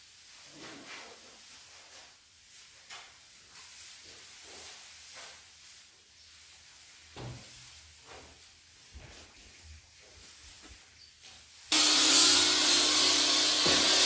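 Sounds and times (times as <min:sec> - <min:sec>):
faint light knocks and rustles: 0:07.0 - 0:11.5
grinder grinding wood: 0:11.7 - 0:14.0.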